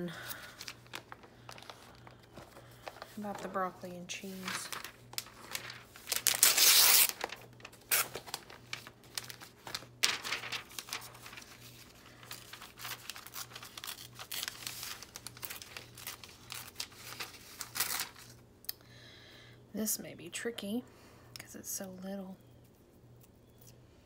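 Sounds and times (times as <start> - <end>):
paper rustling and crinkling: 0.1 - 18.4
paper tearing: 4.4 - 11.7, 12.3 - 18.3.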